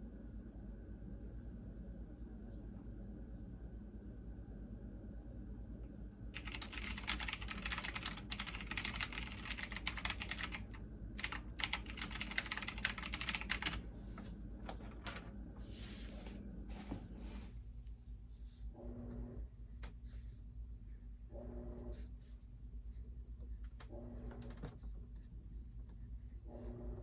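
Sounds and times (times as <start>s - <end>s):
steady low hum: 0.0s - 27.0s
computer keyboard typing: 6.4s - 13.8s
soft rustle: 15.6s - 17.7s.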